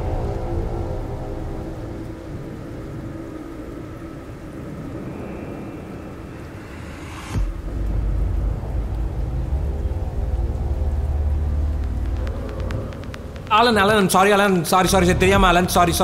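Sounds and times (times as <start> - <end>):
low rumbling drone: 0.0 - 14.0
rising whoosh: 4.6 - 13.6.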